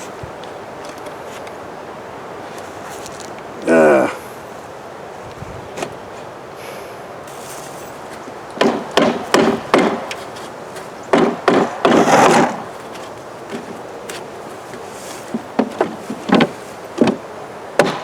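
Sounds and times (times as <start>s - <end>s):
knocks on wooden equipment: 8.6s - 18.0s.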